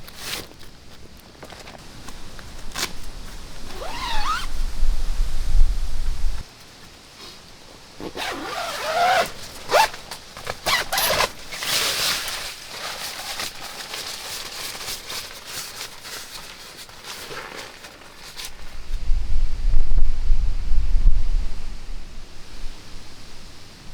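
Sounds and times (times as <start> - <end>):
rustling: 0.0 - 19.2
rasping zipper-like pulls: 3.7 - 4.6, 8.0 - 11.8.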